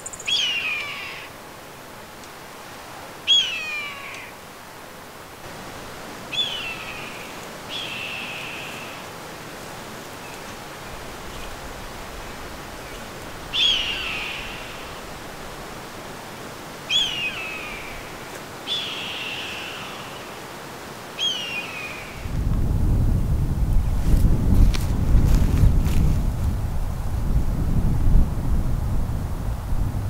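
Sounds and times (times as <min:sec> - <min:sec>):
steady outdoor hiss: 0:00.0 - 0:30.0
bird calls sliding downward: 0:06.3 - 0:09.0, 0:18.7 - 0:20.4, 0:21.2 - 0:22.2
wind buffeting the microphone: 0:22.1 - 0:30.0.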